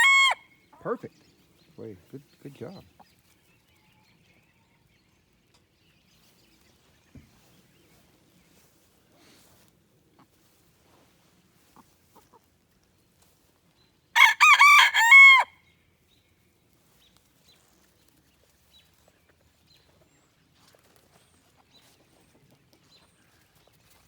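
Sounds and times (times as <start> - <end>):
rooster crowing: 0.0 - 0.4, 14.2 - 15.6.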